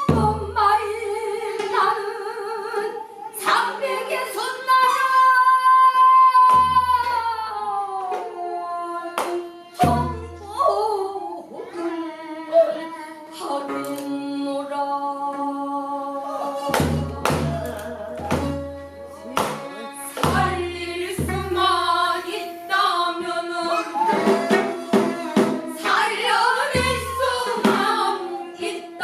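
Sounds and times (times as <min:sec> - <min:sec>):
voices singing: 0:00.0 - 0:29.0
barrel drum deep beats: 0:19.4 - 0:21.9, 0:26.7 - 0:28.1.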